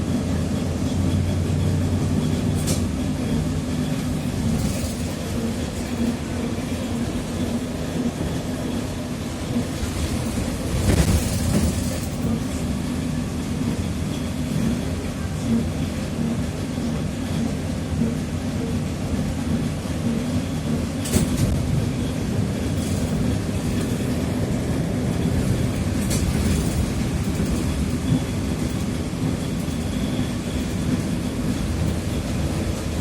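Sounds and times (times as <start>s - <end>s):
trolleybus rumble: 0.0s - 33.0s.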